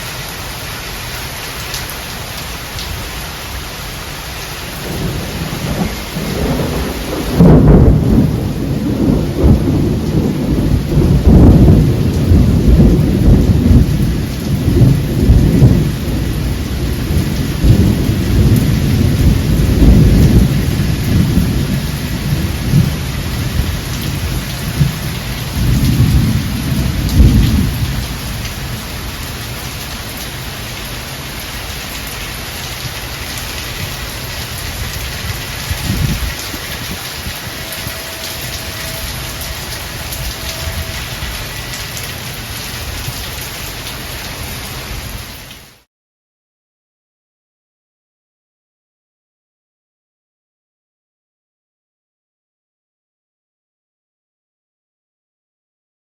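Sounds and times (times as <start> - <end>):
heavy rain: 0.0 - 45.9
loud thunder clap: 4.8 - 16.3, 17.0 - 28.1
thunder rumbling: 4.8 - 30.3, 33.7 - 43.3.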